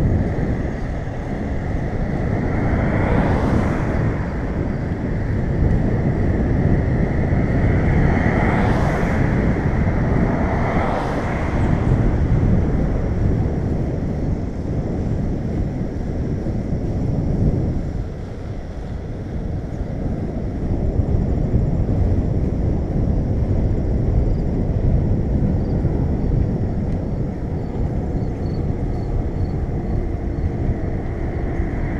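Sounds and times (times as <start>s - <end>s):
motor vehicles passing: 0.0s - 31.9s
wind rumbling over microphone: 0.0s - 31.9s.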